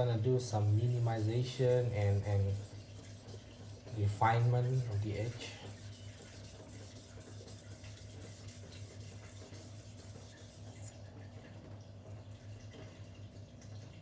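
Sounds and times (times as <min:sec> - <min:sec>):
blade scraping on whetstone: 0:00.6 - 0:10.9.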